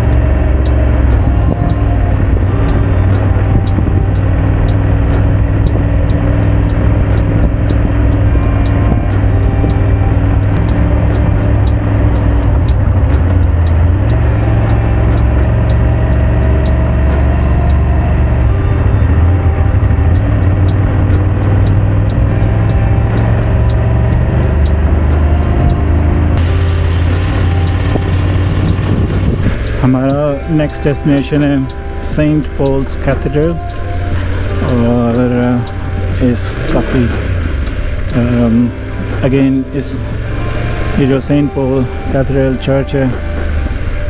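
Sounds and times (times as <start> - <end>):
faint short ticks: 0.0 - 25.8
motorcycle engine running: 0.0 - 44.0.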